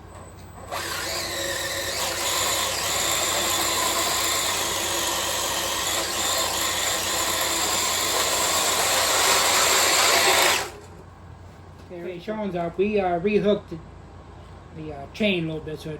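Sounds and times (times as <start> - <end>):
electric motor whining: 0.6 - 10.9.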